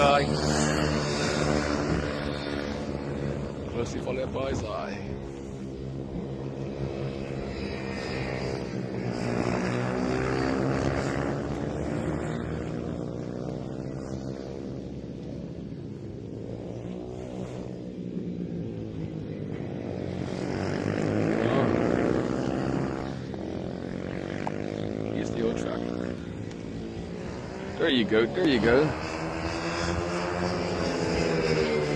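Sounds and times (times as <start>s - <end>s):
mini motorcycles buzzing at full throttle: 0.0s - 31.9s.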